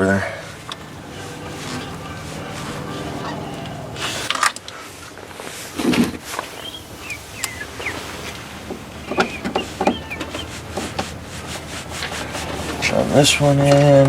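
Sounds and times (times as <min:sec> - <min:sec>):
bird chirps: 0:06.3 - 0:10.7.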